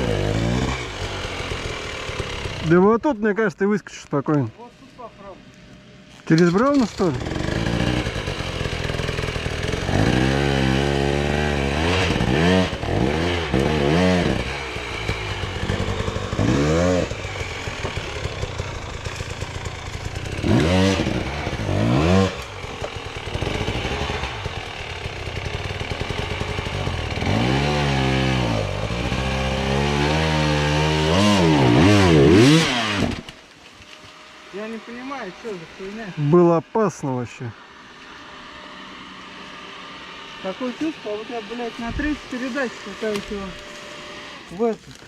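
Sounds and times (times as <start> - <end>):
motorcycle engine revving hard: 0.0 - 2.8, 6.4 - 33.3.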